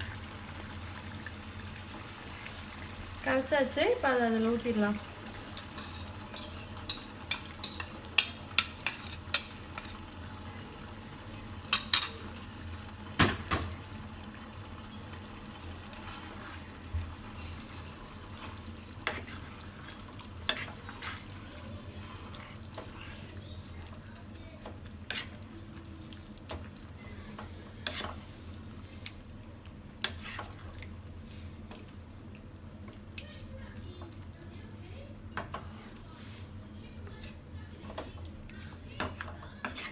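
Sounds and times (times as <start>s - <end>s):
faint sizzle: 0.0s - 39.9s
utensil clinking and scraping pan: 5.5s - 10.0s.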